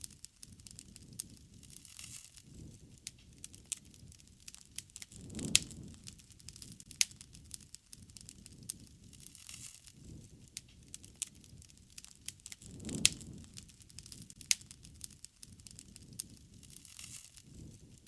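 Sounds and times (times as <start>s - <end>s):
campfire popping and snapping: 0.0s - 18.0s
rushing flames: 0.0s - 18.0s
loud fire pop: 5.1s - 7.2s, 12.4s - 14.7s.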